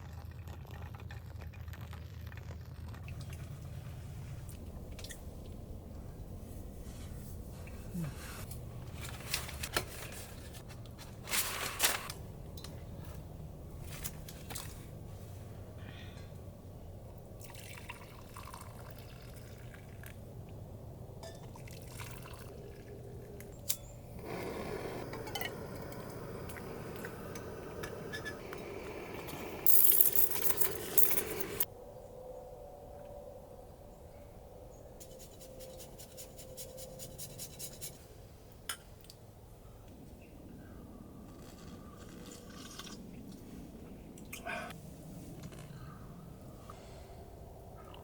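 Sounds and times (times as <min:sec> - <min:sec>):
liquid being poured: 0:17.4 - 0:20.1, 0:21.4 - 0:23.4.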